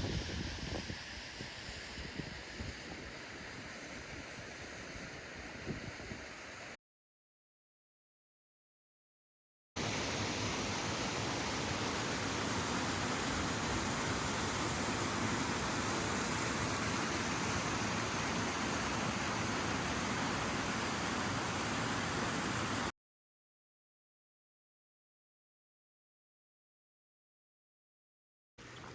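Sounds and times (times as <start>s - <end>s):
rush of flowing water: 0.0s - 6.8s, 9.8s - 22.9s, 28.6s - 28.9s.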